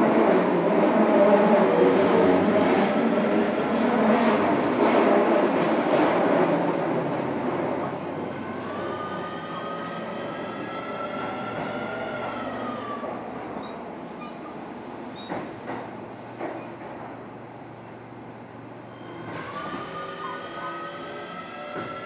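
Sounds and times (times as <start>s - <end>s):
train running gear rumble: 13.0s - 17.5s.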